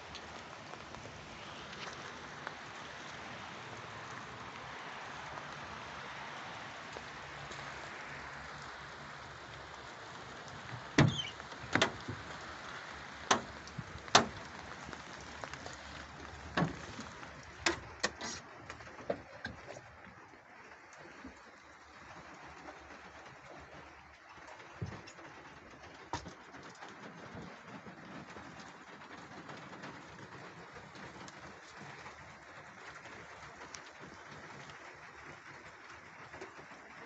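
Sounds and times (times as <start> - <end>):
sharp knocks and clunks: 11.0 - 12.2, 13.3 - 14.5.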